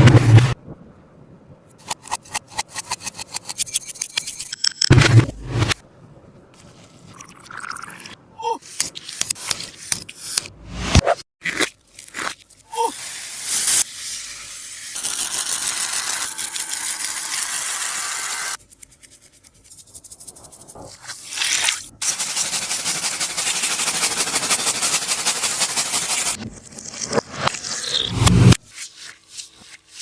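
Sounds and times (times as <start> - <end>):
tape-covered squishy crinkling: 11.4 - 12.7.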